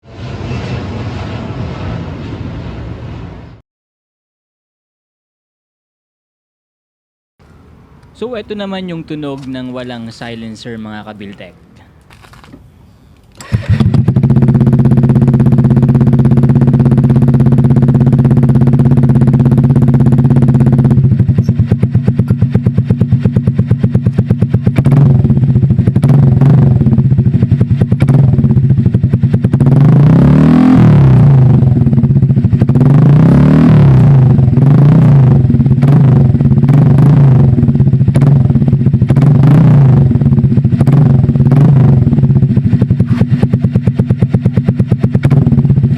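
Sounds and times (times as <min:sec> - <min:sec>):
scooter engine revving: 0:13.4 - 0:45.9.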